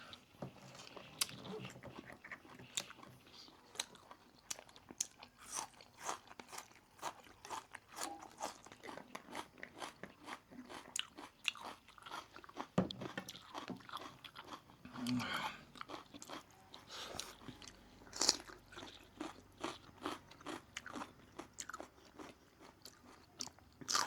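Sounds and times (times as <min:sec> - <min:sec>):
wet chewing: 0:00.1 - 0:24.0.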